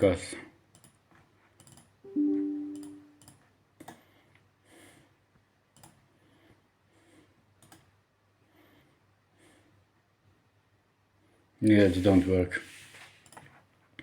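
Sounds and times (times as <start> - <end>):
two-note computer chime: 2.1 - 3.2
soft rustling: 11.7 - 13.6.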